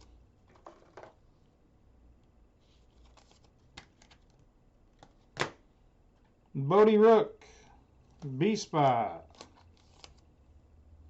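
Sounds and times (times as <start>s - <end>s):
trading cards being handled: 2.6s - 5.6s, 8.0s - 10.3s.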